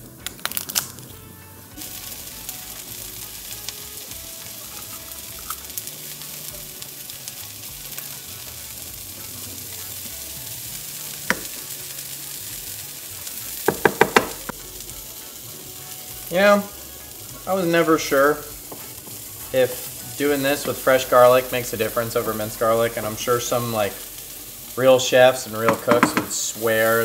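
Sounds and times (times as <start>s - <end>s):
vegetables sizzling in oil: 0.0s - 27.0s
knife knocking on cutting board: 11.3s - 11.6s, 13.7s - 14.4s, 25.7s - 26.3s
sharp knocks: 13.7s - 14.4s.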